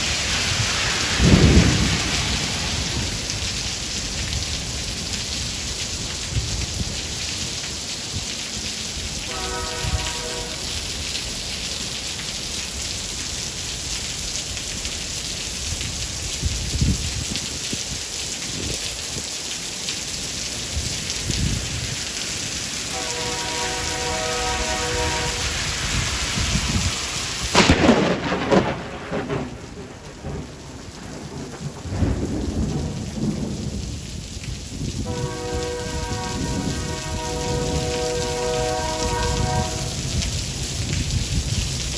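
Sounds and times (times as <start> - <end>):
sharp close thunderclap: 0.0 - 4.6, 24.9 - 38.0
low rolling thunder: 0.0 - 5.6, 22.9 - 41.9
heavy rain: 0.0 - 41.9.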